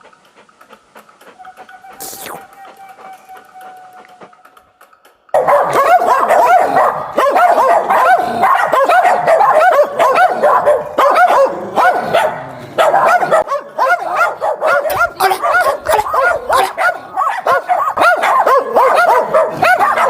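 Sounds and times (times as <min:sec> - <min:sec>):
dog barking and yipping: 0:05.3 - 0:20.0.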